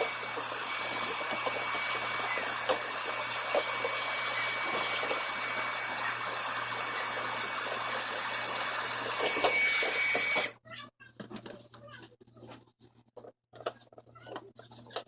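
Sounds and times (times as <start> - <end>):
small electric motor running: 0.0 - 10.6.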